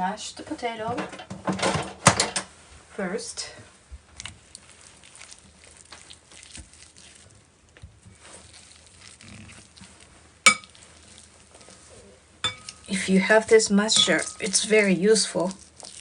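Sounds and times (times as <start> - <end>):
potatoes being mashed: 4.0 - 16.0.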